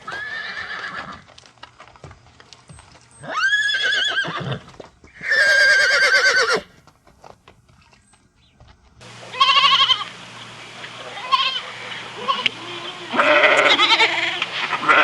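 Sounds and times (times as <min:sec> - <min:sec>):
horse whinnying: 0:00.0 - 0:01.2, 0:03.2 - 0:06.8, 0:13.1 - 0:15.0
goat bleating: 0:03.3 - 0:06.7, 0:09.2 - 0:10.1, 0:11.0 - 0:15.0.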